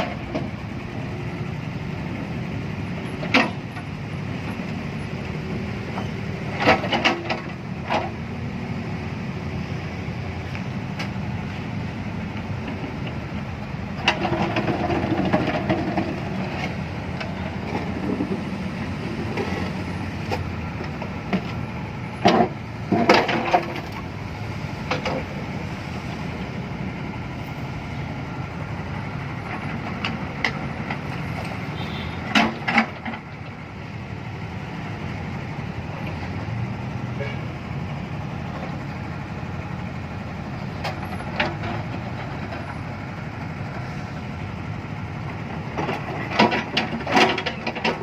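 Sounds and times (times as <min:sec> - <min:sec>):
large engine running: 0:00.0 - 0:48.0
loud clanks and knocks: 0:22.2 - 0:24.0, 0:32.2 - 0:33.3, 0:45.7 - 0:48.0.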